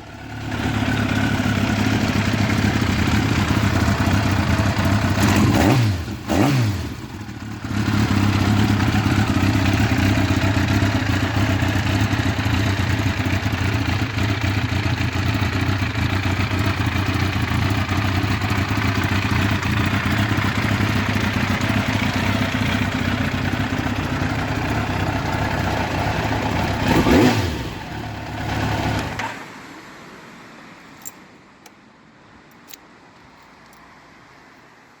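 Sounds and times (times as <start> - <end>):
motorcycle engine idling: 0.0 - 29.2
engine revving: 0.3 - 12.6, 20.8 - 29.3.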